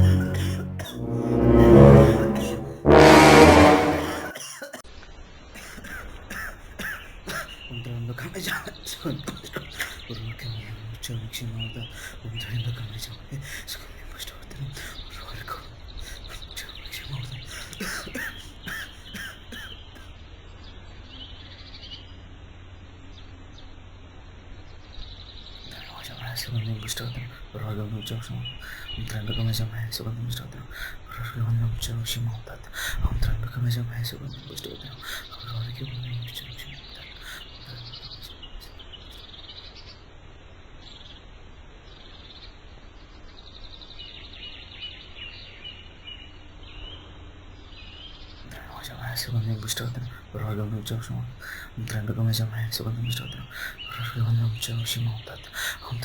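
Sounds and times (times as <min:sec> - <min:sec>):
steady low hum: 0:00.0 - 0:04.3
background hiss: 0:05.2 - 0:39.6, 0:48.4 - 0:56.0
small birds chirping: 0:47.9 - 0:56.0.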